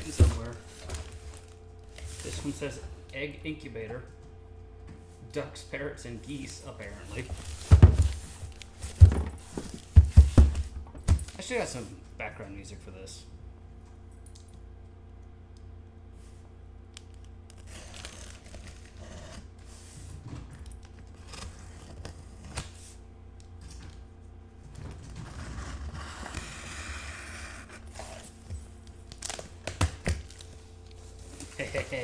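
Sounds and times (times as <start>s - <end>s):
packaging rustling and tearing: 0.0s - 2.7s, 6.5s - 10.0s, 17.5s - 19.5s, 27.4s - 32.0s.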